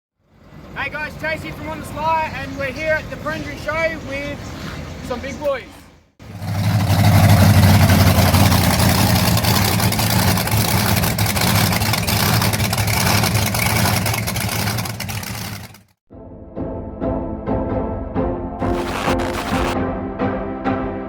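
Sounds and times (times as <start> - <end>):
truck engine running loud: 6.2 - 15.9
music: 16.1 - 21.0.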